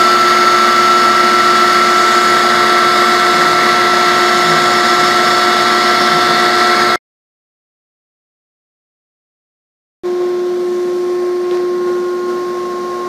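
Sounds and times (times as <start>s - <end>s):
machine hiss: 0.0s - 7.0s
spindle high whine: 0.0s - 7.0s, 10.0s - 13.0s.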